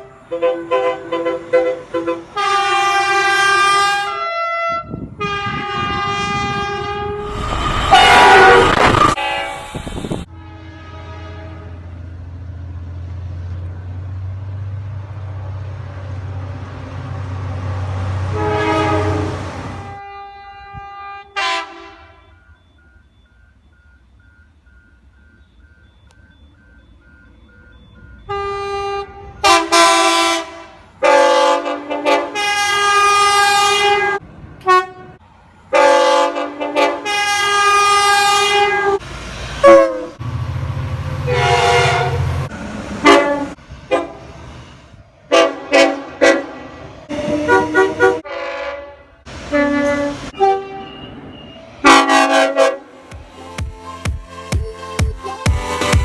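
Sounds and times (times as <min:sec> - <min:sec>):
train horn blasts: 0:00.0 - 0:12.0, 0:18.2 - 0:22.4, 0:28.2 - 0:39.0, 0:39.6 - 0:40.2, 0:41.2 - 0:44.3, 0:45.3 - 0:51.2, 0:51.8 - 0:53.1
low rumble: 0:06.7 - 0:10.3
faint repeated beep: 0:22.2 - 0:28.3, 0:50.8 - 0:51.7.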